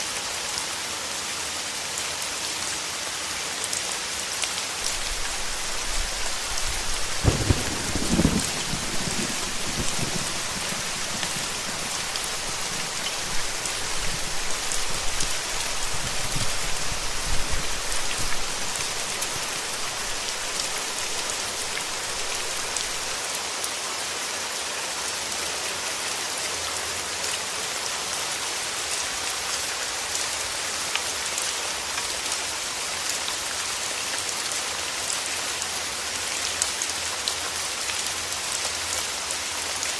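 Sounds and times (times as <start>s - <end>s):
steady rain: 0.0s - 39.9s
thunder rumbling: 4.8s - 23.2s.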